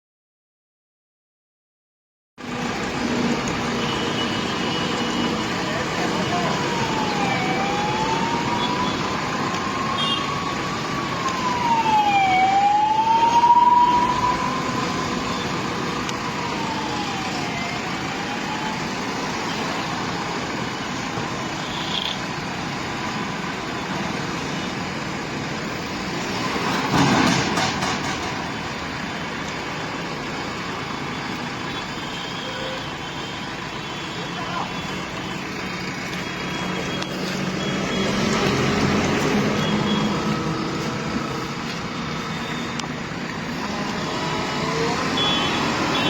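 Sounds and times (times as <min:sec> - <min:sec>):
vehicle engine noise: 0:02.4 - 0:46.0
wailing siren: 0:03.2 - 0:24.9, 0:29.5 - 0:46.0.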